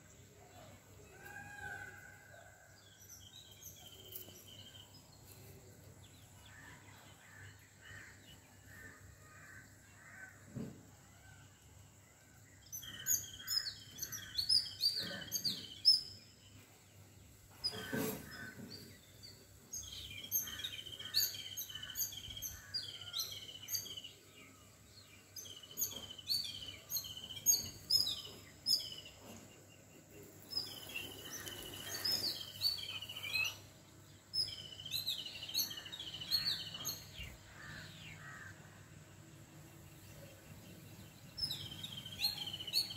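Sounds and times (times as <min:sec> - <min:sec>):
songbirds chirping: 0:00.0 - 0:42.9.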